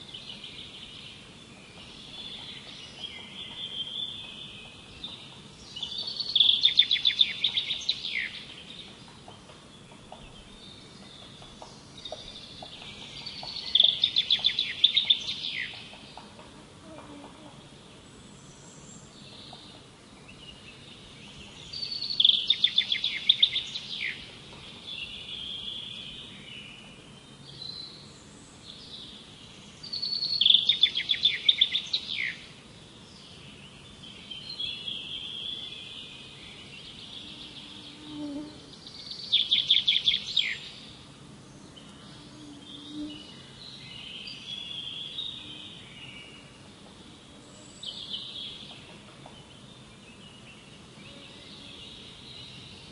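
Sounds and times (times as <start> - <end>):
bird high trilled song: 1.8 - 8.8, 10.3 - 16.1, 20.5 - 26.8, 29.8 - 32.4, 38.8 - 40.9.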